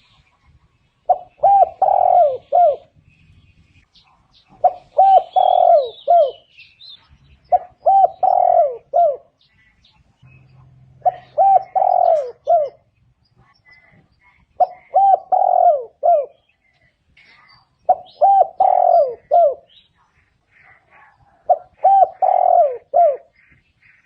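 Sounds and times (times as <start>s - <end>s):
small bird chirping: 0.0s - 24.0s
dove cooing: 1.0s - 3.0s, 4.5s - 6.5s, 7.4s - 9.4s, 11.0s - 12.9s, 14.6s - 16.5s, 17.8s - 19.8s, 20.5s - 23.6s.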